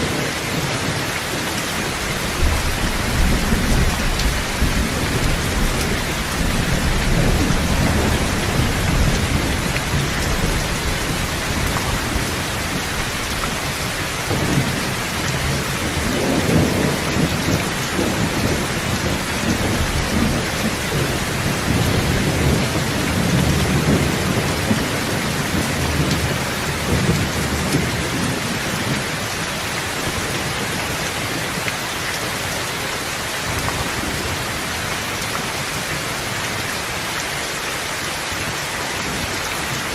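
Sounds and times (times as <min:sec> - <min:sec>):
low rolling thunder: 0:00.0 - 0:29.4
heavy rain: 0:00.0 - 0:39.9.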